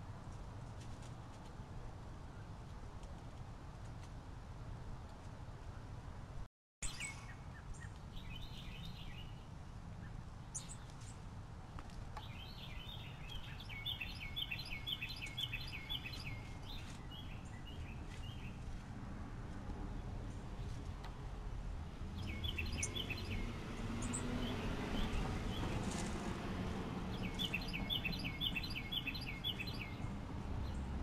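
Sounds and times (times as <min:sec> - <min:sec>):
small birds chirping: 0:06.8 - 0:18.8, 0:22.0 - 0:26.2, 0:27.0 - 0:31.0.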